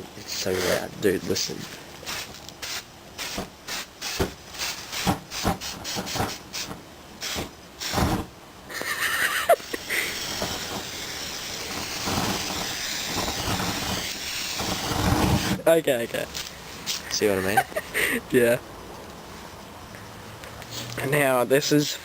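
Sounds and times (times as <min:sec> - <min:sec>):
gas flame hissing: 0:00.0 - 0:18.5
knocks and crackles: 0:01.6 - 0:08.3, 0:10.2 - 0:15.6.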